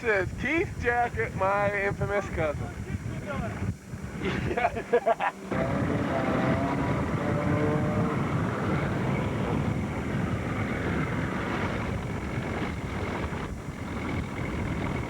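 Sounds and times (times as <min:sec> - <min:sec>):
wind buffeting microphone: 0:00.0 - 0:15.0
motorboat engine running: 0:05.4 - 0:15.0.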